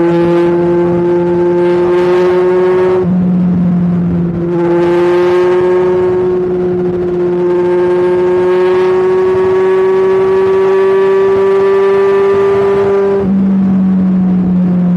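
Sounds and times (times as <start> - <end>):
motorcycle engine and exhaust: 0.0 - 14.9.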